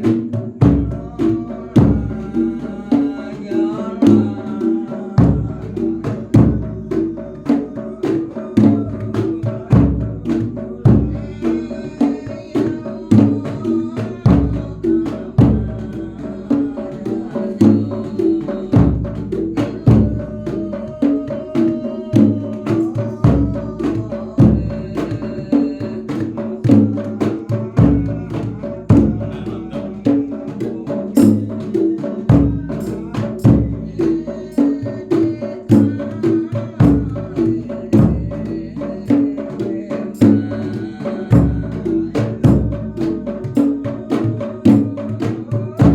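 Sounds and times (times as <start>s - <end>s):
drums and pitched percussion: 0.0s - 45.9s
bass drum booming: 5.2s - 7.0s, 13.0s - 16.2s, 17.6s - 20.5s, 26.7s - 29.8s, 32.3s - 34.2s, 35.7s - 39.0s, 40.3s - 43.8s.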